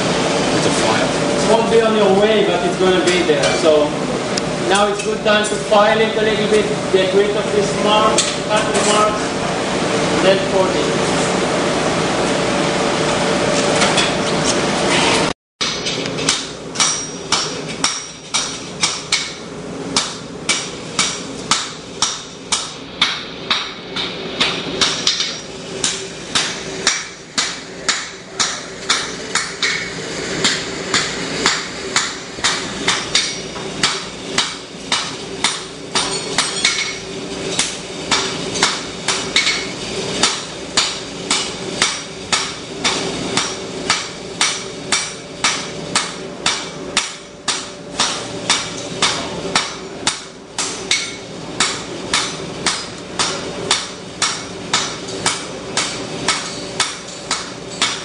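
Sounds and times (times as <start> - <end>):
hammer striking anvil: 15.6 - 19.4, 20.0 - 37.0, 37.6 - 58.0.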